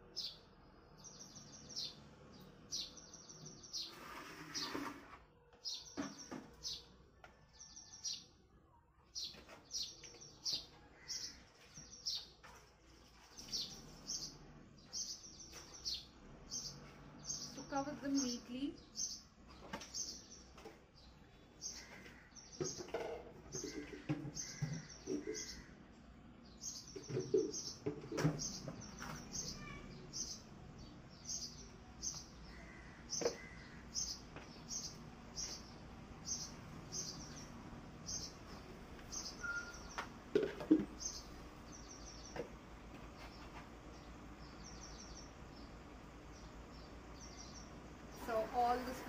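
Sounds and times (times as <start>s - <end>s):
trowel scraping potting soil: 3.8s - 5.3s
small bird chirping: 26.5s - 40.1s.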